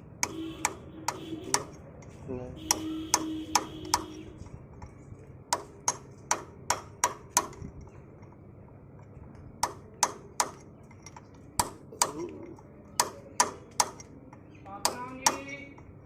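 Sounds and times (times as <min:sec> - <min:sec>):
hammer striking metal: 0:02.6 - 0:04.1, 0:05.5 - 0:07.6, 0:09.6 - 0:10.7, 0:11.6 - 0:12.3, 0:13.0 - 0:14.1, 0:14.8 - 0:15.7.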